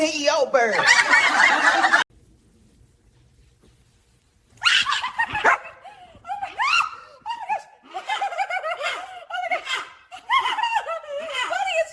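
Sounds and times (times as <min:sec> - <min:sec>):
high-pitched laughter: 0:04.6 - 0:05.8, 0:06.4 - 0:11.9.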